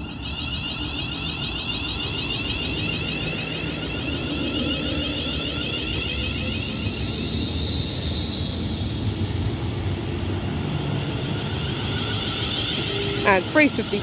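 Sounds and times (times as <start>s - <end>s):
electric traction whine: 0.0s - 14.0s
train rumbling: 0.0s - 14.0s.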